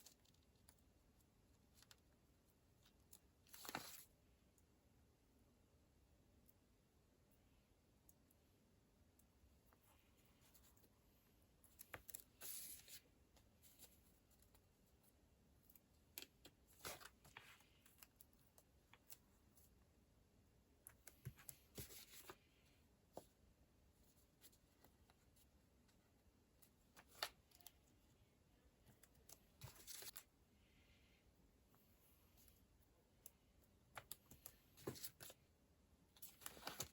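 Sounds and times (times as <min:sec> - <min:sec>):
paper rustling: 0:03.4 - 0:04.1, 0:29.2 - 0:30.3, 0:36.2 - 0:36.9.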